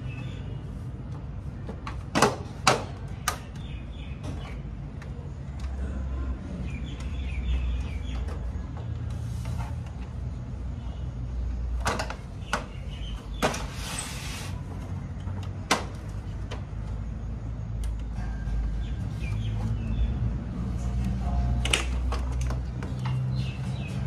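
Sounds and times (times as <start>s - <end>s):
clicks and knocks of plastic parts: 11.7s - 12.8s.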